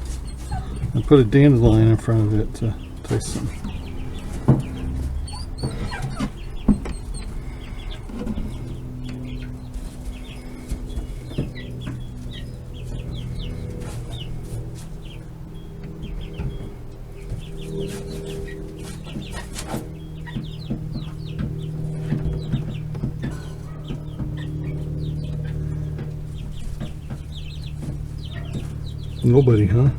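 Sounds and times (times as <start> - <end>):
steady low hum: 0.0 - 29.9
young chickens peeping and clucking: 0.0 - 29.9.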